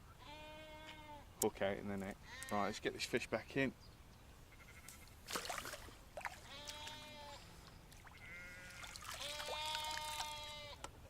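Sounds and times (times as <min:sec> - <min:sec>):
sheep bleating: 0:00.2 - 0:01.2, 0:04.5 - 0:05.0, 0:06.4 - 0:07.4, 0:08.2 - 0:10.8.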